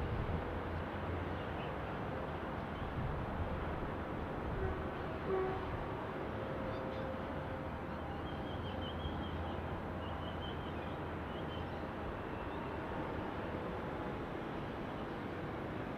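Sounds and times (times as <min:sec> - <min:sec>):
city background noise: 0:00.0 - 0:15.9.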